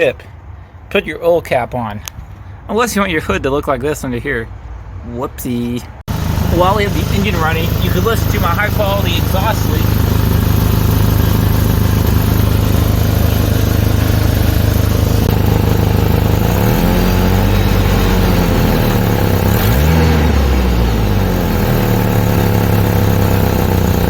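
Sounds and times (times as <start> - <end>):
truck engine idling and revving: 5.9 - 24.0.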